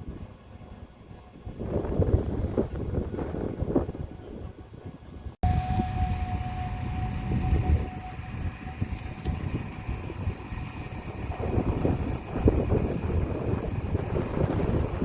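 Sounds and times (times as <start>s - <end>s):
harvesting machinery rumbling: 5.4s - 15.0s
high whine: 5.4s - 15.0s.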